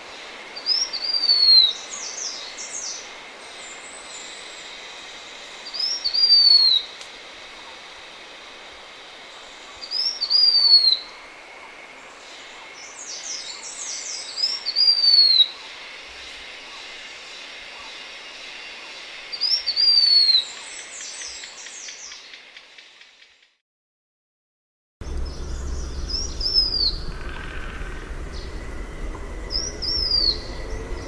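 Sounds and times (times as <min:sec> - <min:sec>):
faint steady hiss: 0:00.0 - 0:23.3
bird whistling song: 0:00.6 - 0:02.4, 0:05.7 - 0:06.9, 0:09.8 - 0:11.1, 0:14.0 - 0:15.5, 0:19.3 - 0:22.3, 0:25.5 - 0:27.1, 0:29.4 - 0:31.0.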